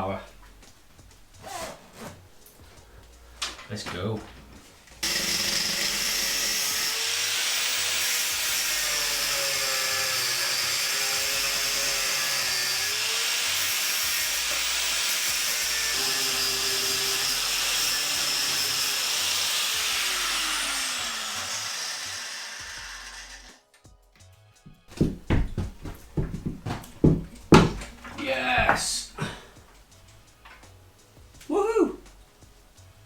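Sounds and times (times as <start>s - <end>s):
power tool motor under load: 5.0s - 23.6s.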